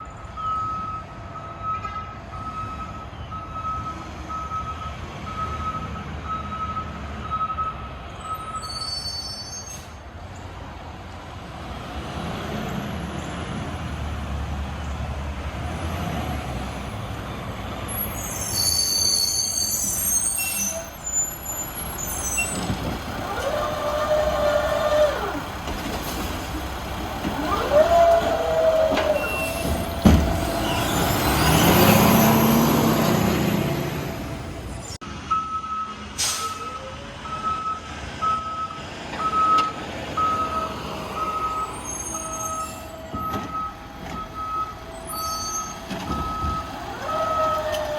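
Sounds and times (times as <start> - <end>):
air brakes hissing and squealing: 8.1 - 10.2, 17.9 - 26.6, 27.2 - 35.0, 36.1 - 37.4, 39.2 - 47.9
diesel engine running: 21.0 - 35.0.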